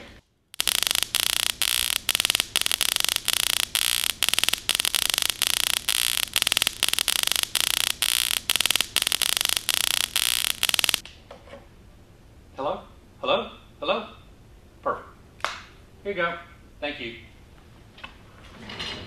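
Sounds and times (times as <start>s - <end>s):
harsh electronic static buzz: 0.0s - 11.0s.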